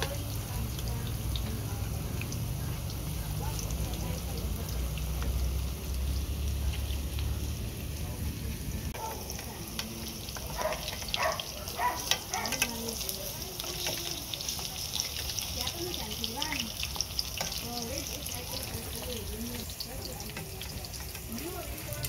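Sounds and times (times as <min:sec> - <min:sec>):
tofu sizzling in oil: 0:00.0 - 0:22.0
metal spoon scooping oil: 0:09.2 - 0:22.0.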